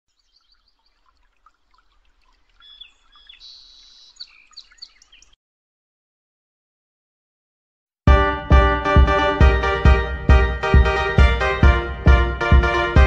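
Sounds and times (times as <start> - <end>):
birds chirping and singing: 2.6 - 5.4.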